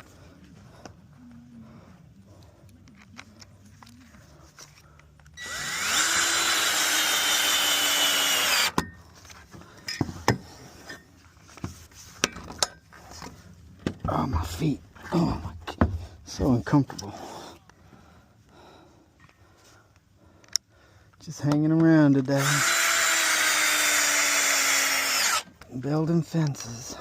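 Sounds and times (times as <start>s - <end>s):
cordless drill driving bolt: 5.4s - 8.8s, 22.4s - 25.5s.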